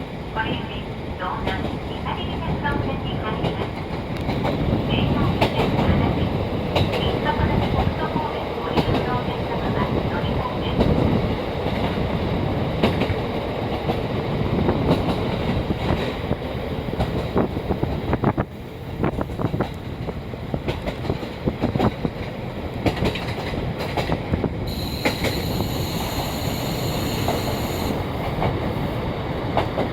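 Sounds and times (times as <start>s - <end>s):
diesel railcar running: 0.0s - 29.9s
wheels clacking over rail joints: 20.6s - 28.8s
high-pitched squeal: 24.7s - 28.1s.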